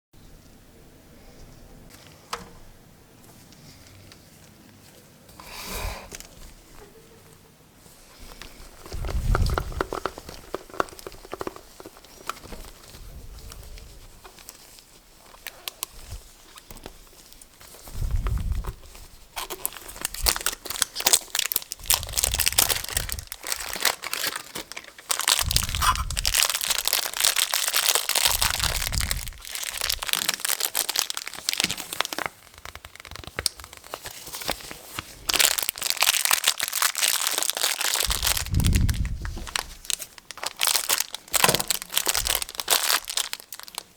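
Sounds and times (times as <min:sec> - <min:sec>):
packaging crinkling and tearing: 0:08.2 - 0:43.9
dull low bumps: 0:38.1 - 0:39.9.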